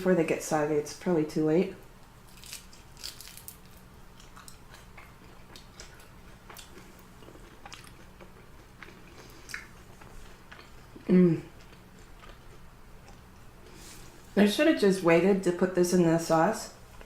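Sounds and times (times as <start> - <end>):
person chewing crunchy food: 2.2 - 13.8.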